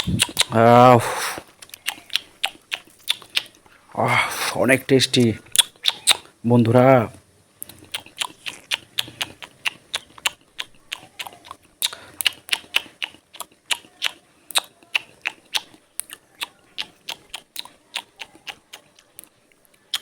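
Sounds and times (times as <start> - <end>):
person chewing crunchy food: 0.0 - 4.3, 7.6 - 20.0.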